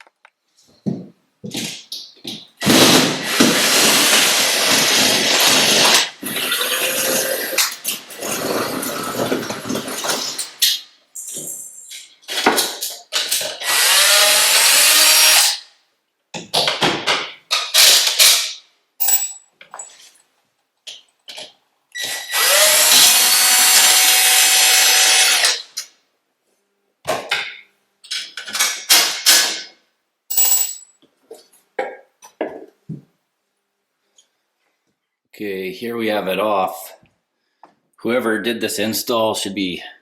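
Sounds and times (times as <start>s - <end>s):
power drill running: 2.6s - 7.6s, 13.6s - 15.6s, 22.0s - 25.6s.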